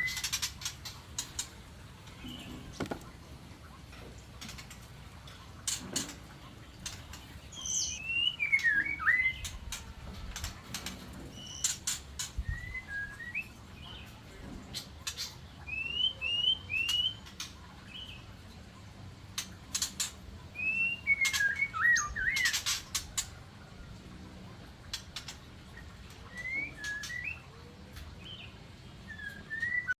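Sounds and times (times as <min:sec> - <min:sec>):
birds chirping and whistling: 0:00.0 - 0:01.6, 0:02.2 - 0:02.9, 0:06.8 - 0:09.9, 0:10.7 - 0:18.3, 0:19.4 - 0:23.0, 0:25.7 - 0:27.6, 0:28.2 - 0:30.0.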